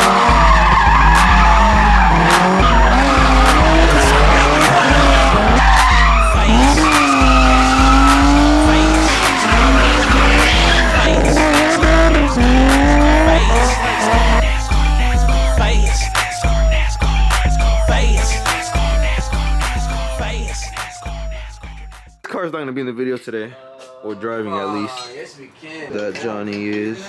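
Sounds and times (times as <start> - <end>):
tyres squealing: 0.0 - 16.4
car engines revving: 0.0 - 20.9
hip-hop beat with heavy bass: 0.0 - 22.4.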